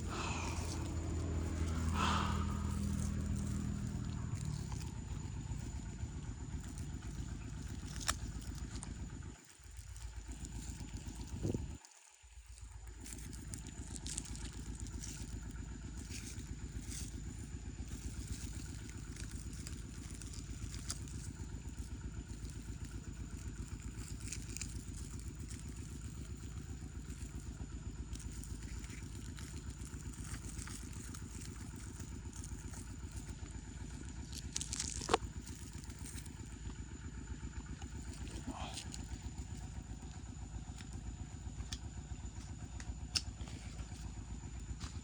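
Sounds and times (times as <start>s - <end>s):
small engine running: 0.0s - 45.0s.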